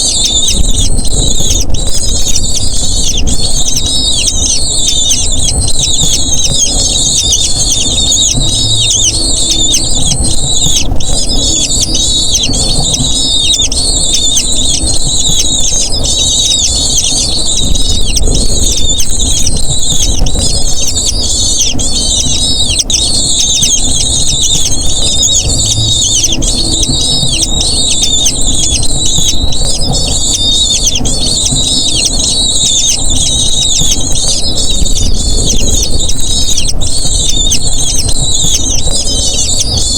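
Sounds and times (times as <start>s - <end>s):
low rumble: 0.0s - 39.8s
eagle chicks squealing: 0.0s - 39.9s.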